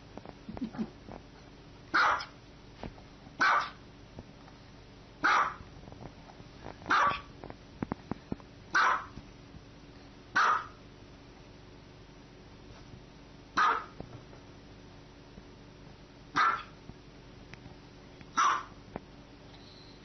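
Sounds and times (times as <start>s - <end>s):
small dog yapping: 1.9s - 2.4s, 3.4s - 3.8s, 5.2s - 5.6s, 6.9s - 7.3s, 8.7s - 9.1s, 10.4s - 10.8s, 13.6s - 14.0s, 16.4s - 16.8s, 18.4s - 18.8s.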